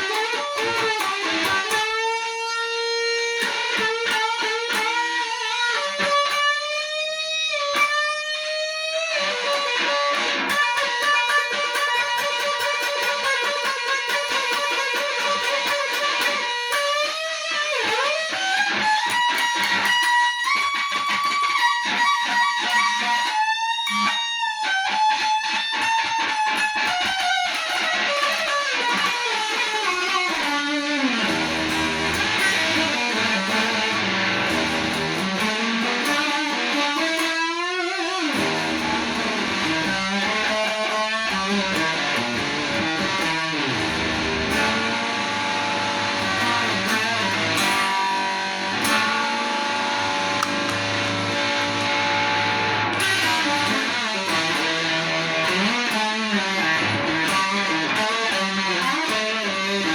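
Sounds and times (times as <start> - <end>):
electric guitar blues-rock solo: 0.0 - 59.9.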